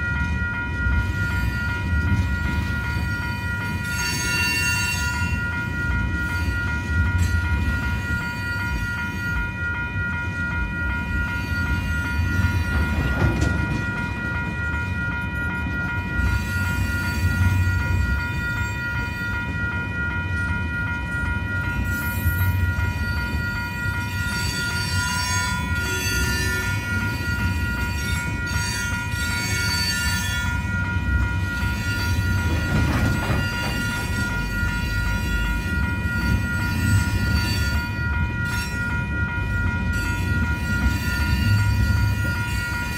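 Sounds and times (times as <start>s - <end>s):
crossing warning bell ringing: 0.0s - 42.9s
steel wheels rumbling on rail: 0.0s - 42.9s.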